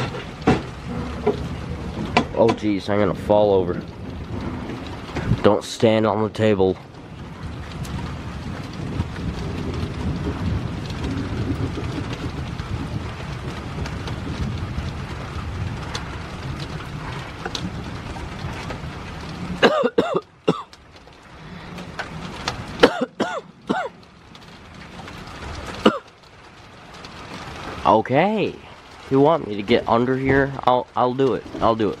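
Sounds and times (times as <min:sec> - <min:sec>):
rain: 0:00.0 - 0:32.0
wind rumbling on microphone: 0:00.0 - 0:32.0
person coughing: 0:19.6 - 0:20.7, 0:22.8 - 0:23.9, 0:25.8 - 0:26.1.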